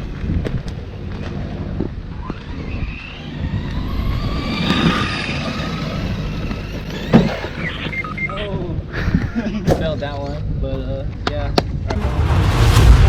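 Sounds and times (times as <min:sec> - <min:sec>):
rc truck motor whining: 0:02.2 - 0:08.4.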